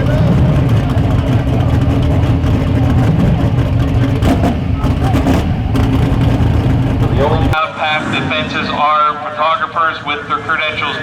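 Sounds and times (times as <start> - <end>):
racing car engine idling: 0.0 - 7.6.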